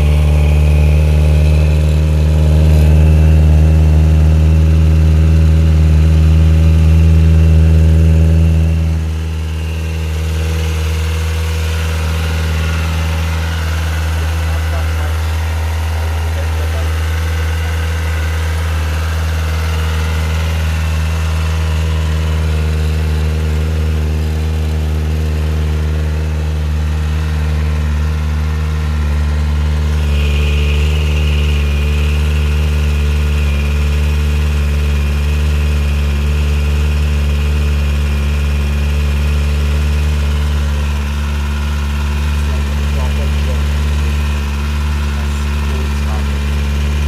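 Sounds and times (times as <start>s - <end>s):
high whine: 0.0s - 35.3s
motorcycle engine idling: 0.0s - 47.0s.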